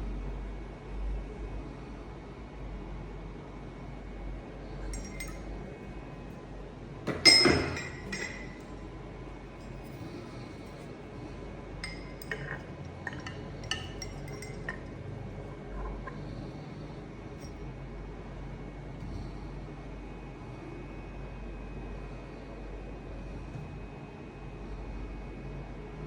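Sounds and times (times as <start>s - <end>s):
metal clinking: 4.9s - 5.6s, 7.1s - 8.8s, 11.8s - 15.0s.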